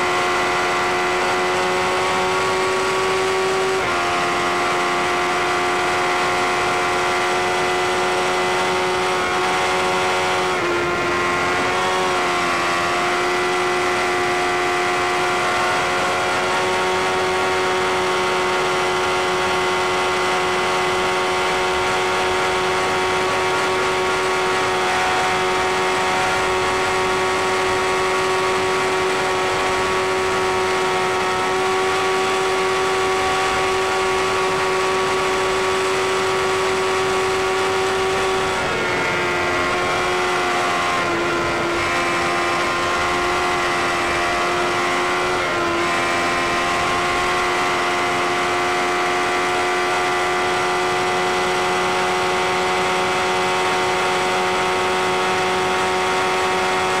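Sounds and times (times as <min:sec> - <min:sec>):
motorcycle engine at high revs: 0:00.0 - 0:57.0.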